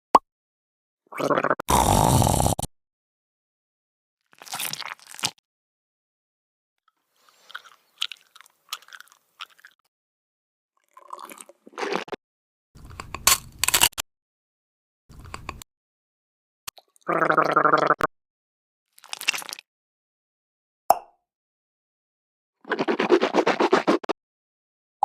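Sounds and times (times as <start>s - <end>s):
crackly crunchy noises: 4.2s - 5.4s, 7.2s - 9.9s, 18.9s - 19.6s.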